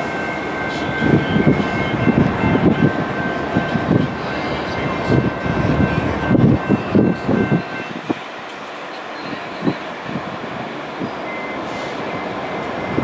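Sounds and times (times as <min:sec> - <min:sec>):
high-pitched tones: 0:00.0 - 0:08.2
train rumbling past: 0:00.0 - 0:13.0.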